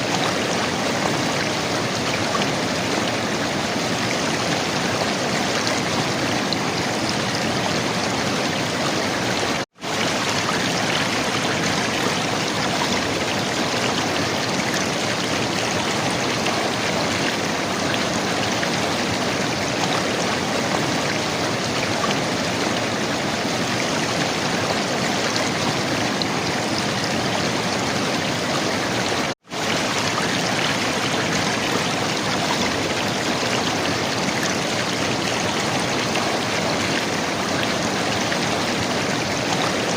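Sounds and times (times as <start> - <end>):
river water flowing and gurgling: 0.0 - 39.9.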